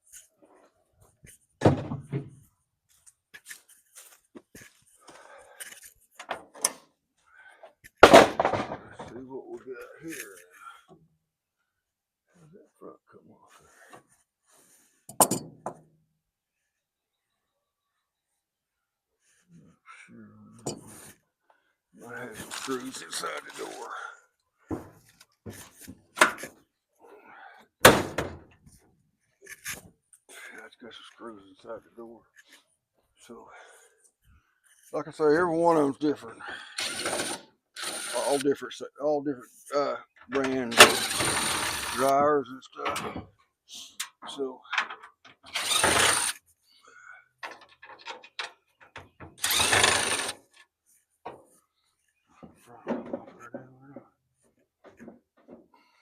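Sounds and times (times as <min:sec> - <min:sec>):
power driver backing out screws: 0:36.8 - 0:38.4, 0:40.4 - 0:42.2, 0:45.3 - 0:46.4, 0:47.5 - 0:50.6
small clicks and clatter: 0:47.4 - 0:50.7.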